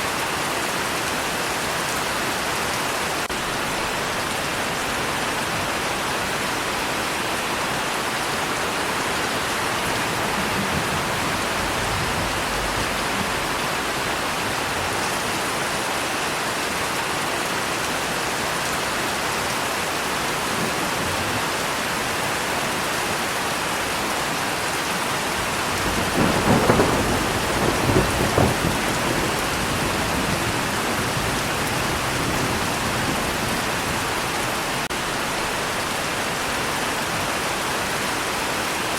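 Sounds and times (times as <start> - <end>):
heavy rain: 0.0 - 38.9
thunder rumbling: 8.8 - 15.4, 25.3 - 35.6.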